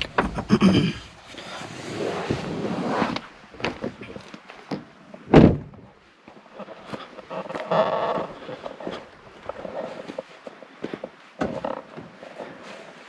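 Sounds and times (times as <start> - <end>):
rustling: 0.0 - 13.0
vehicle door slamming shut: 5.3 - 5.8.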